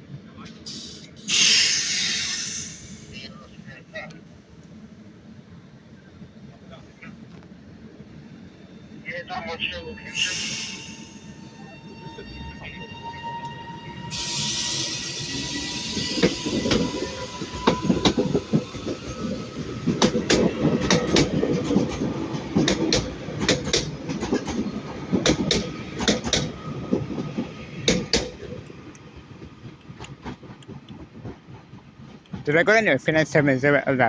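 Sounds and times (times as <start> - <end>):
hiss: 0.7 - 3.3, 10.1 - 11.4, 14.1 - 18.5
train wheels clattering: 13.5 - 32.5.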